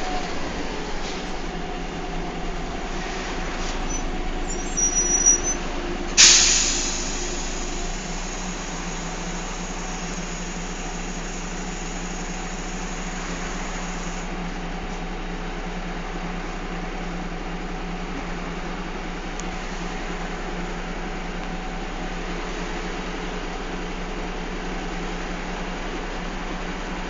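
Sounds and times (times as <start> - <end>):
bus engine and road noise: 0.0 - 27.0
air brake hiss: 3.6 - 5.6, 6.2 - 14.3
high squeal: 3.6 - 8.2.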